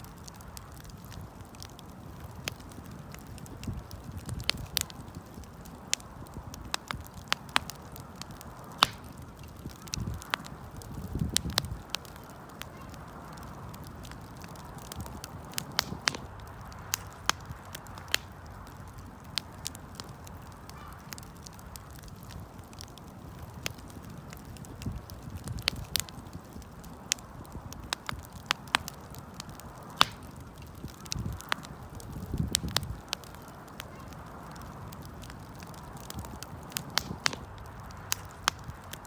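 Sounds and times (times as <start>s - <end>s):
wood fire crackling and popping: 0.0s - 39.0s.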